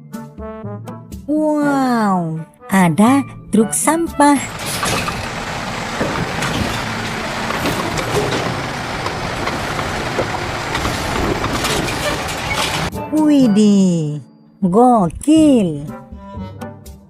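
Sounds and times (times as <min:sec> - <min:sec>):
garbage truck rumbling: 0:03.6 - 0:12.9.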